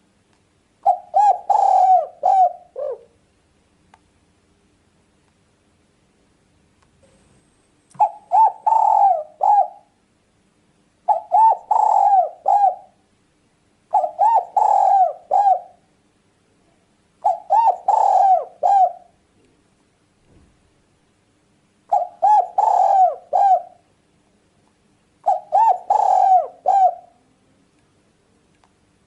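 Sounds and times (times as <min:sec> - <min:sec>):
dove cooing: 0:00.8 - 0:03.2, 0:08.0 - 0:10.0, 0:11.1 - 0:13.0, 0:13.9 - 0:15.8, 0:17.2 - 0:19.2, 0:21.9 - 0:23.9, 0:25.2 - 0:27.3.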